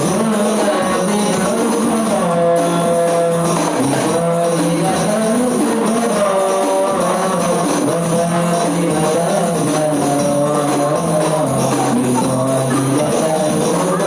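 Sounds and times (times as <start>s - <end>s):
frame drums with jingles: 0.0s - 14.0s
voices singing: 0.0s - 14.0s.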